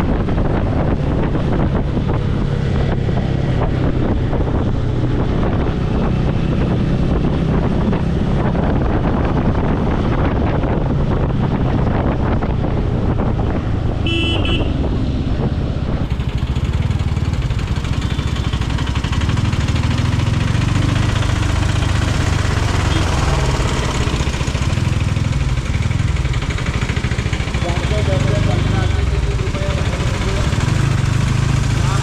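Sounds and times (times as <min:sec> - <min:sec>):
motorcycle engine running: 0:00.0 - 0:32.0
horn toot: 0:14.0 - 0:14.8.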